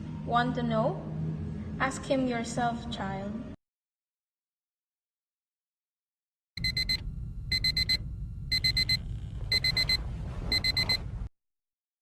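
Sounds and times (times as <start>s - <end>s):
alarm clock beeping: 6.6s - 11.0s.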